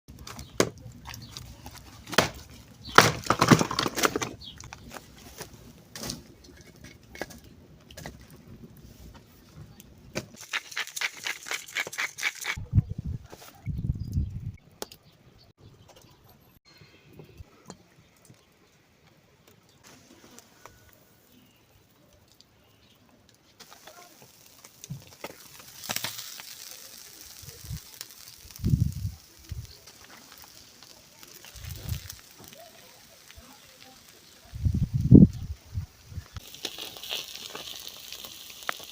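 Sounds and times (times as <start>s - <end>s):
wood cracking and knocking: 0.1s - 5.1s
fire pops: 0.1s - 12.6s, 23.3s - 38.9s
wood fire crackling: 0.1s - 12.6s, 17.1s - 38.9s.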